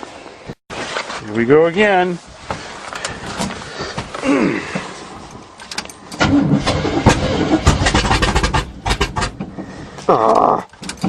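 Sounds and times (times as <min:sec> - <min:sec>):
starter cranking engine: 0:06.1 - 0:09.9
engine sputtering: 0:06.1 - 0:10.7.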